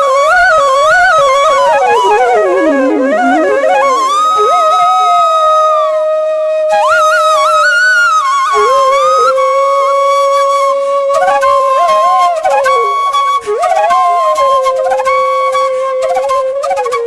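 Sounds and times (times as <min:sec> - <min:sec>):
flute music: 0:00.0 - 0:17.0.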